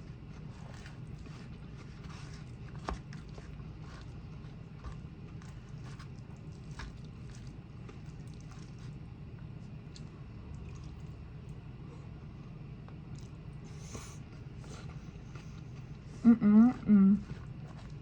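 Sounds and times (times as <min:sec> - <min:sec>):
steady low hum: 0:00.0 - 0:18.0
chewing with sharp clicks: 0:09.8 - 0:11.6, 0:13.0 - 0:13.4.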